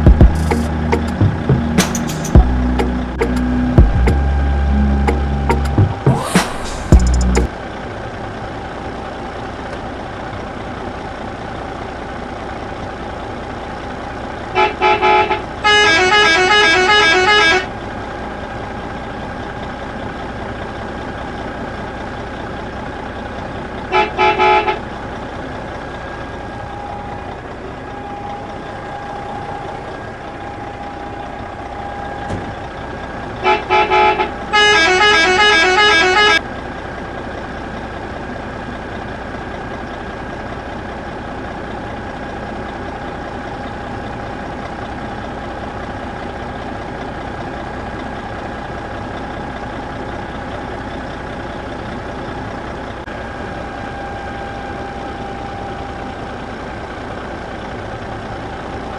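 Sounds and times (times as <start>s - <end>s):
steady whine: 0.0s - 7.5s
electronic toy horn toots: 14.6s - 17.7s, 23.9s - 24.8s, 33.4s - 36.4s
warbling musical horn tune: 33.4s - 36.4s.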